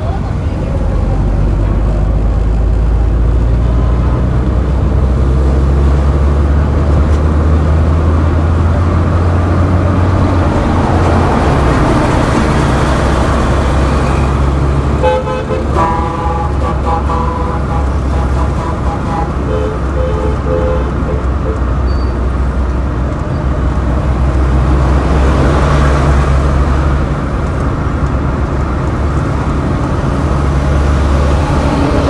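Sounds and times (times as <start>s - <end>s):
road traffic rumble: 0.0s - 32.0s
vehicle horns honking: 12.6s - 22.6s.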